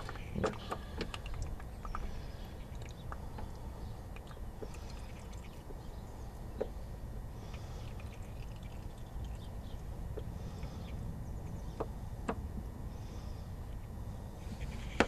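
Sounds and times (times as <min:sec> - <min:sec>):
coolant dripping and trickling: 0:00.0 - 0:05.9, 0:07.4 - 0:10.9.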